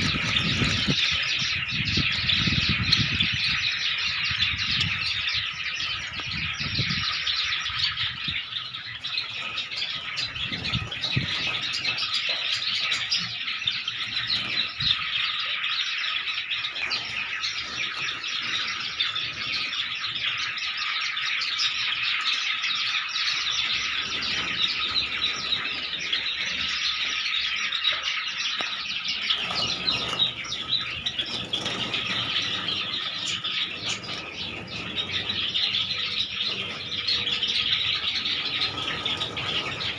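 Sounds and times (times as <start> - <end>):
flock of sparrows chirping: 0.0 - 39.9.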